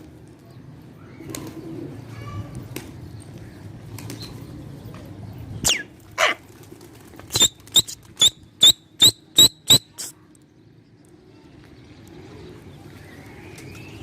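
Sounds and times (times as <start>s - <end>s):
sharp chirping whistle blasts: 7.4s - 10.0s.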